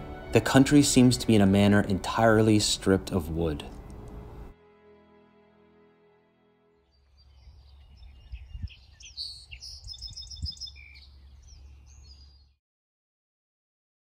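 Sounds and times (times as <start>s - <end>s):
songbirds singing: 6.8s - 12.6s.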